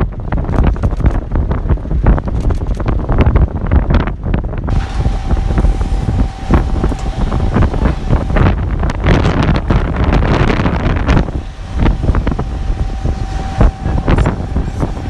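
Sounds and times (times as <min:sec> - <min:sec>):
low rumble and crackling: 0:00.0 - 0:15.0
wind buffeting microphone: 0:00.0 - 0:15.0
steady single tone: 0:04.7 - 0:15.0.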